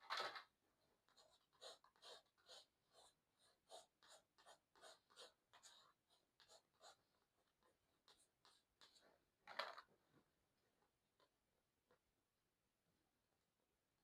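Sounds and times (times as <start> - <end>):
palette knife scraping paper: 1.0 - 9.1.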